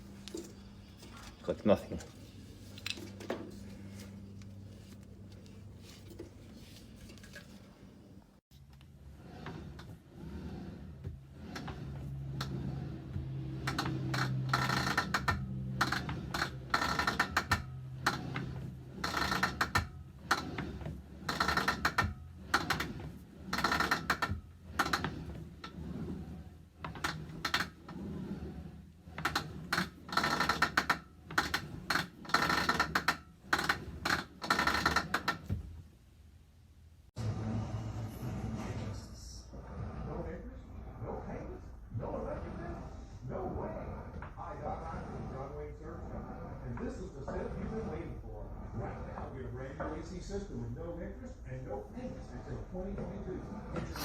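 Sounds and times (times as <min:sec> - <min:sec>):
rowing machine pulley clicking: 0:08.6 - 0:35.6.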